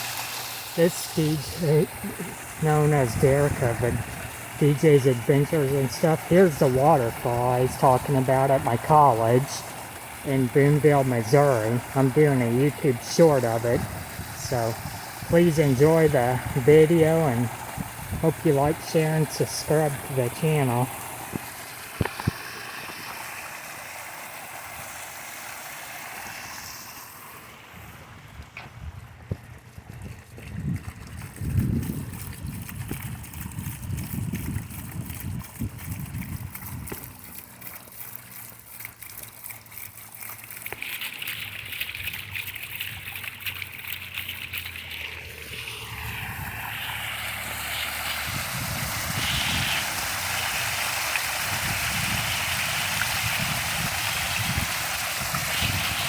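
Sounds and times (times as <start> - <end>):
water fountain splashing: 0.0 - 56.0
wind buffeting microphone: 1.2 - 5.4, 11.1 - 20.1, 27.8 - 37.2, 45.4 - 56.0.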